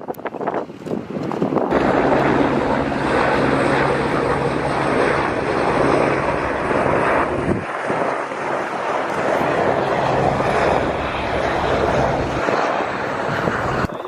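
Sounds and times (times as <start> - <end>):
aircraft engine drone: 0.1 - 14.0.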